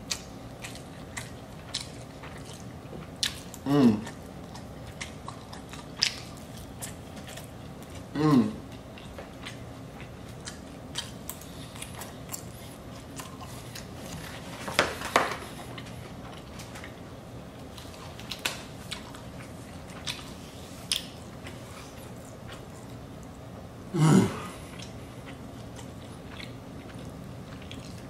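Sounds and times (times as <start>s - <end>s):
person chewing and biting food: 0.0s - 17.0s, 17.6s - 23.5s, 24.5s - 28.0s.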